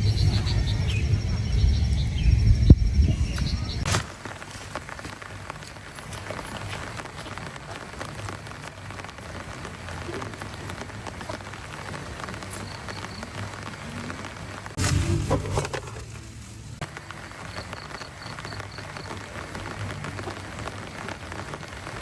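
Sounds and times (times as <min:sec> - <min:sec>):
faint low hum: 0:00.0 - 0:03.9
steady rain falling: 0:00.0 - 0:22.0.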